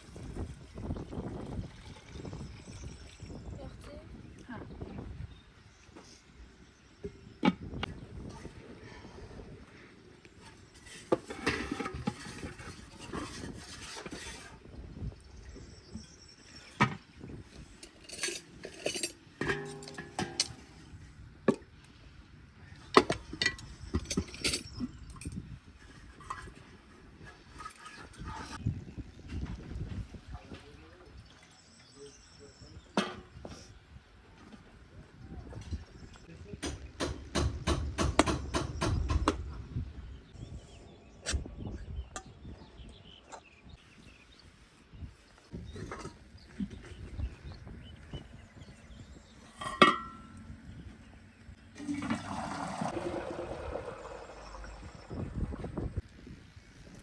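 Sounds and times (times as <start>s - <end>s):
light clinks and knocks: 17.8s - 20.8s.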